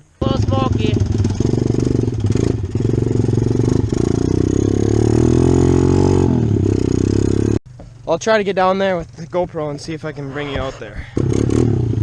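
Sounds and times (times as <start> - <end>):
off-road engine revving: 0.2 - 7.6, 8.2 - 12.0.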